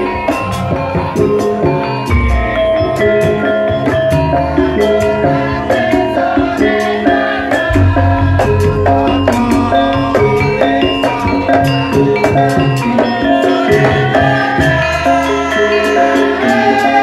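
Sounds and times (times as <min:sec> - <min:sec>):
metallophones playing a melody: 0:00.0 - 0:17.0
drum strokes: 0:01.1 - 0:14.8
deep low note: 0:07.7 - 0:10.8.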